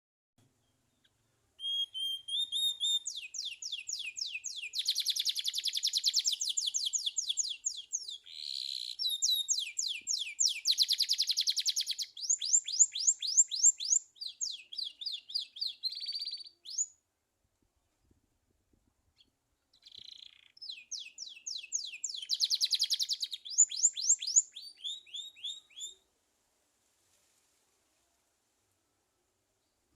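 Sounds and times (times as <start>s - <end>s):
canary singing rapid trills: 1.6s - 16.9s, 19.7s - 25.9s.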